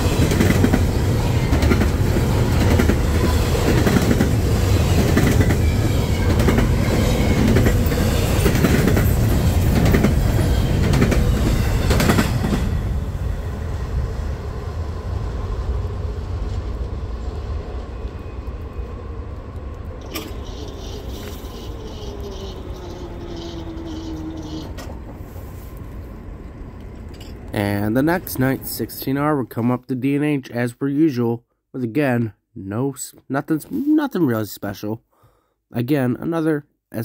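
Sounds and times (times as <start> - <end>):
train wheels clacking over joints: 0.0 - 12.6.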